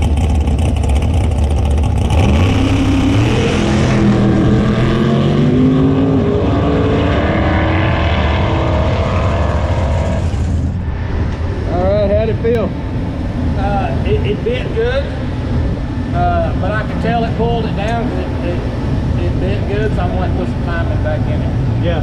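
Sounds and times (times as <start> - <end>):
race car engine accelerating: 0.0 - 10.8.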